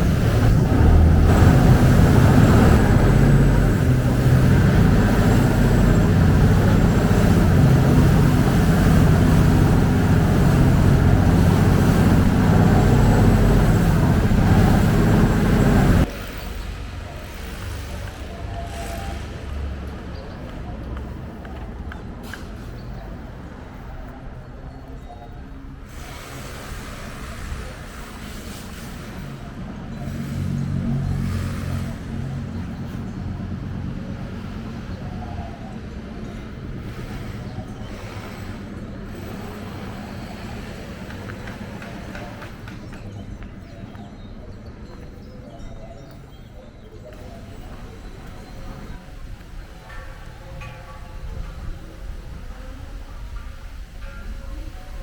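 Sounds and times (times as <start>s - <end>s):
motor engine running: 0.0s - 16.4s
boat engine running: 0.0s - 16.6s, 26.4s - 42.9s.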